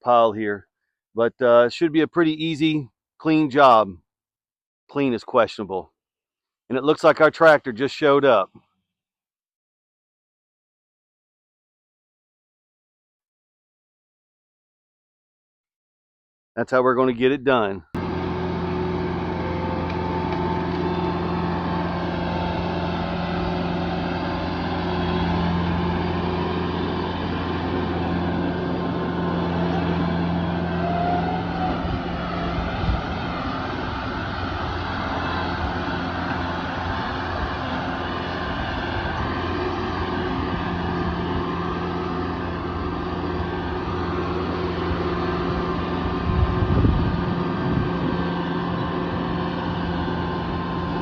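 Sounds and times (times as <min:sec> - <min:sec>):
tractor engine humming: 0:18.0 - 0:51.0.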